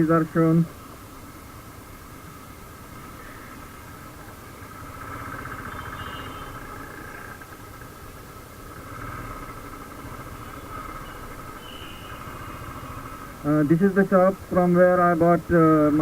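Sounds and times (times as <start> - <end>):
motorcycle engine rumbling: 0.0 - 16.0
street noise: 0.0 - 16.0.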